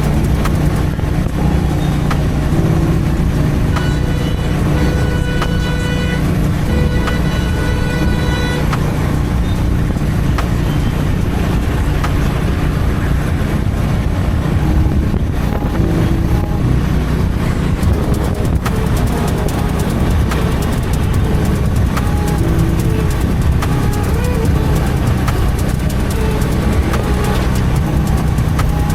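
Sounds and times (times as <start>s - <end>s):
motorcycle engine running: 0.0s - 28.9s
vehicle horn honking: 3.7s - 11.1s.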